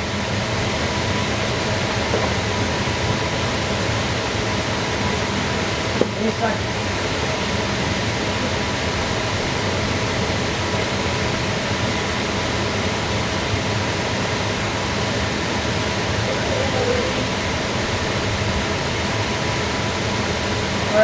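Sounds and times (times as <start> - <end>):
faint hum: 0.0 - 21.0
fan running: 0.0 - 21.0.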